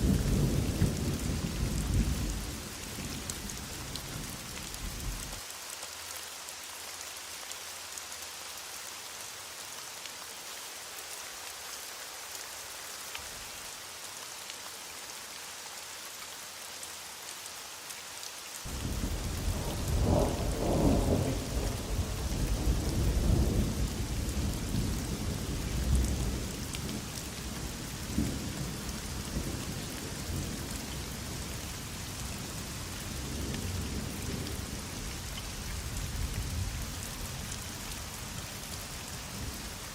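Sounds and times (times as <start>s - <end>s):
heavy rain falling: 0.0s - 39.9s
thunder rumbling: 18.7s - 26.4s.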